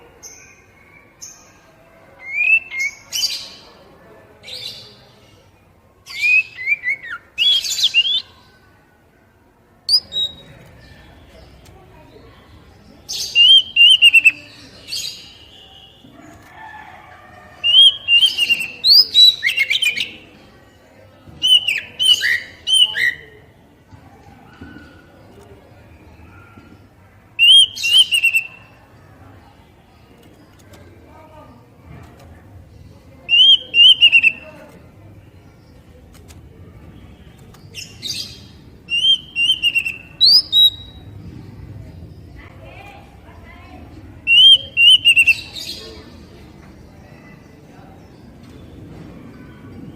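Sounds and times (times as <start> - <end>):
bird singing whistled notes: 6.1 - 8.3, 9.9 - 10.5, 13.1 - 14.4, 17.7 - 20.2, 21.4 - 23.2, 27.4 - 28.7, 33.3 - 34.4, 38.1 - 41.0, 44.3 - 45.6.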